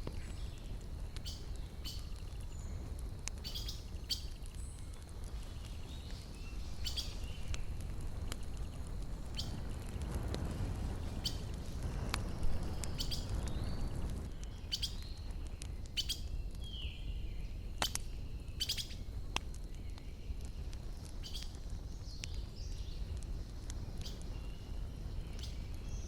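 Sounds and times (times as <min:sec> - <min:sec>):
sharp pops of fire: 0:00.0 - 0:26.0
wood fire crackling: 0:00.0 - 0:26.0
bird chirps: 0:03.4 - 0:04.8.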